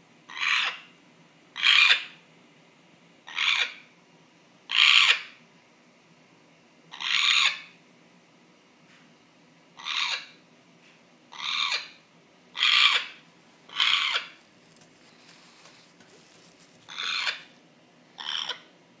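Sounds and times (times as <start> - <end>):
parrot hoarse call: 0.3 - 0.9, 1.6 - 2.2, 3.3 - 3.8, 4.7 - 5.3, 6.9 - 7.7, 9.8 - 10.4, 11.3 - 14.4, 16.9 - 17.5, 18.2 - 18.7.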